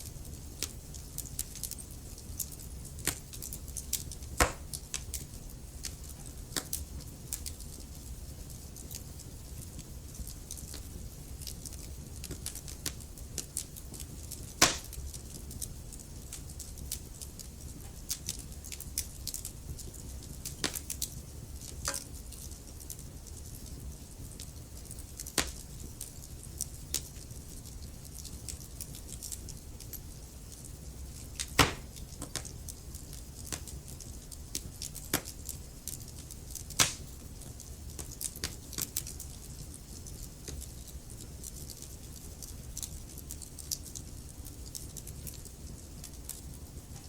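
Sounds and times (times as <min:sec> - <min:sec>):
wood fire crackling: 0:00.0 - 0:47.0
loud pops of fire: 0:00.6 - 0:27.6, 0:30.4 - 0:35.4, 0:36.1 - 0:39.4.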